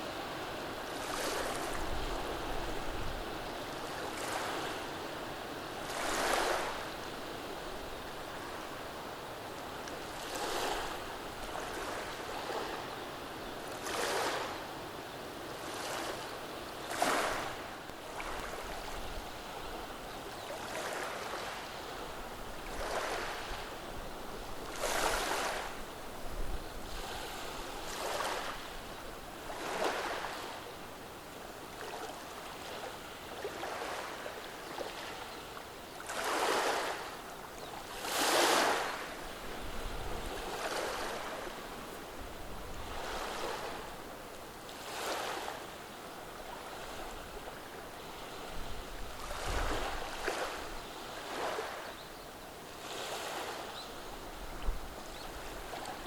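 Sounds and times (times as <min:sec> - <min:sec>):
waves washing over pebbles: 0:05.8 - 0:06.9, 0:16.9 - 0:19.0, 0:37.9 - 0:41.6.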